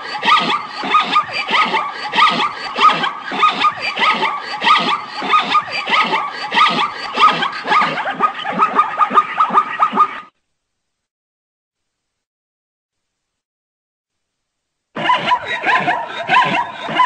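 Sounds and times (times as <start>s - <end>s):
zebra barking calls: 0.0s - 10.2s.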